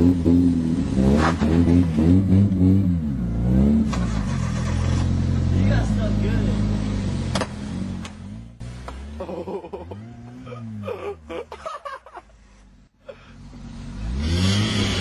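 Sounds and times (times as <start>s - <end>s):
car engine revving: 0.0s - 11.4s, 13.4s - 15.0s
people laughing and exclaiming: 9.2s - 12.2s.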